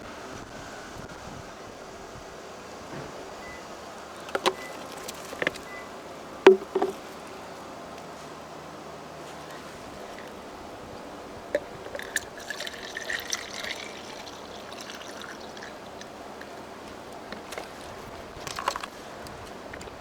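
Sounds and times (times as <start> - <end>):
water splashes and knocks: 4.2 - 5.8, 6.4 - 7.3, 11.5 - 19.0
water trickling and pouring: 11.6 - 18.9.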